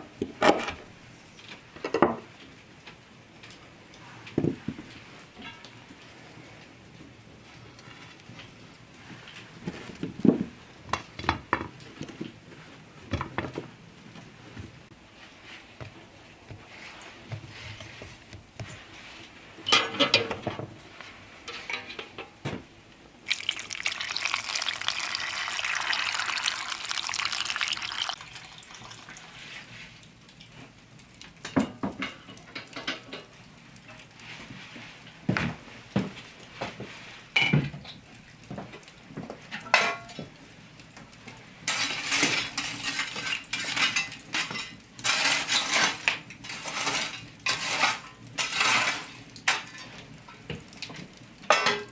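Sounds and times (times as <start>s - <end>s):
utensils and dishes clinking: 19.7s - 20.5s, 21.5s - 22.4s, 23.3s - 29.3s, 39.6s - 40.3s, 41.7s - 50.0s, 51.5s - 51.9s
liquid pouring: 23.3s - 29.8s.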